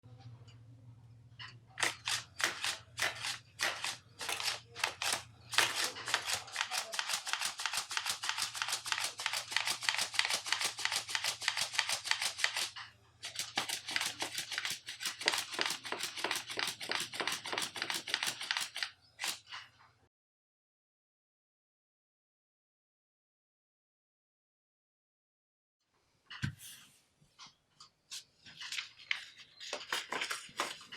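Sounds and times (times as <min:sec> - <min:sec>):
scissors cutting paper: 0:01.8 - 0:19.5, 0:28.2 - 0:30.9.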